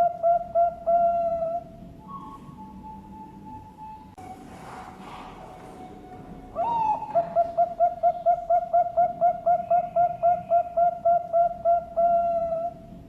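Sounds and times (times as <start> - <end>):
dove cooing: 0.0 - 3.0, 4.6 - 13.0.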